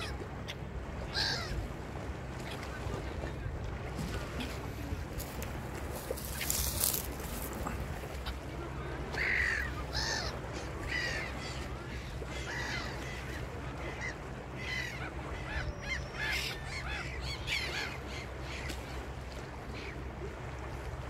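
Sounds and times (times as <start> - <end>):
birds calling in arching calls: 0.0 - 1.6, 9.1 - 18.7.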